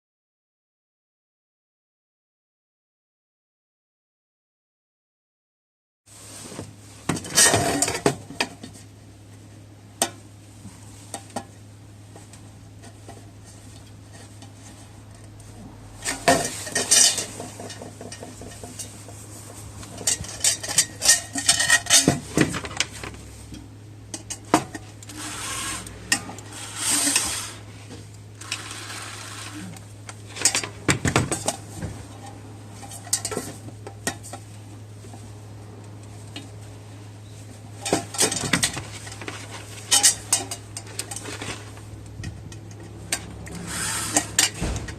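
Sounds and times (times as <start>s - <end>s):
steady low hum: 6.1s - 44.9s.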